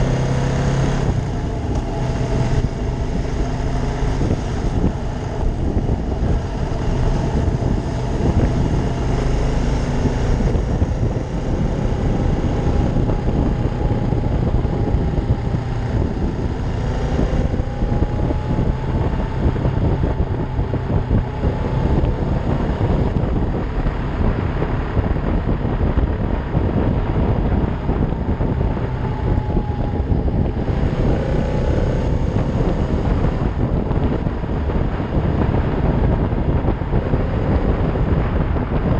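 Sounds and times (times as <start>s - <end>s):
motorcycle engine running: 0.0s - 38.9s
wind noise on microphone: 0.0s - 38.9s.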